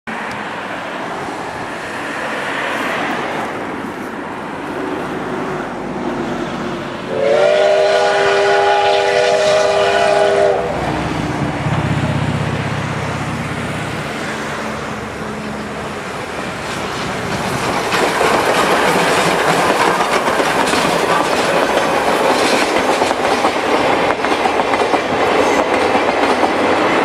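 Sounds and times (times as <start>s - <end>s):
steam locomotive hissing: 0.5s - 27.0s
steam whistle blast: 7.1s - 10.8s.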